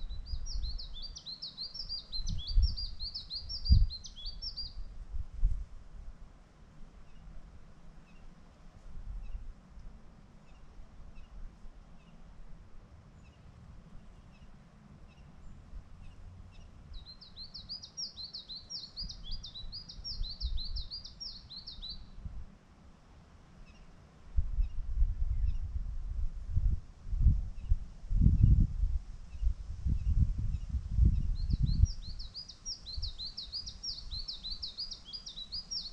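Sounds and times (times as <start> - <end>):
bird chirps: 0.0 - 4.8, 15.1 - 22.2, 29.3 - 35.9
songbird singing: 0.0 - 5.5, 6.8 - 22.4, 23.6 - 35.9
wind rumble on microphone: 0.0 - 7.0, 8.8 - 10.0, 15.3 - 22.5, 24.3 - 35.9.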